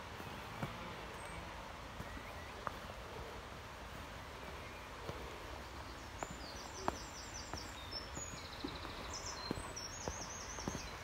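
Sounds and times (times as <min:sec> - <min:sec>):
footsteps on stone steps: 0:00.0 - 0:03.0, 0:03.8 - 0:11.0
steady background hiss: 0:00.0 - 0:11.0.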